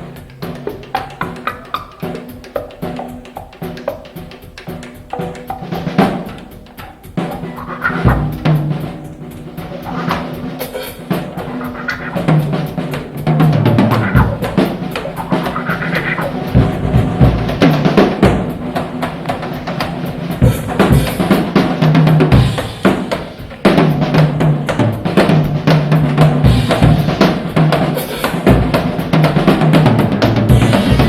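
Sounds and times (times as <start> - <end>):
rock drum kit playing: 0.0 - 31.0.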